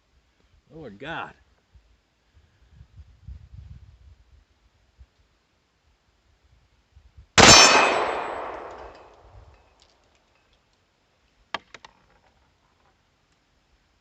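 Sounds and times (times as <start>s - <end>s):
pistol shot with metallic ring: 7.4s - 9.2s.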